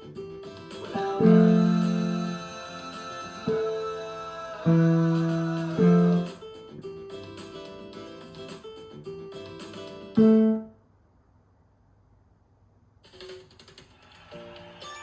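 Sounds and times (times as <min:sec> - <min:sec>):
backing track with rhythmic guitar: 0:00.0 - 0:10.6
keyboard chords: 0:00.0 - 0:10.8.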